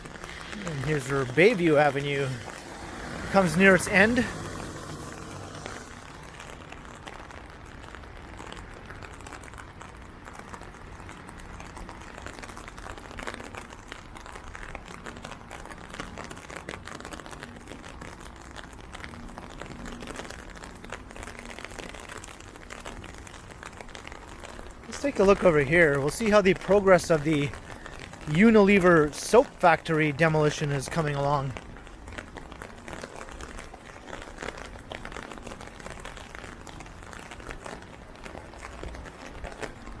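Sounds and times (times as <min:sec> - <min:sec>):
rain on an umbrella: 0:00.0 - 0:40.0.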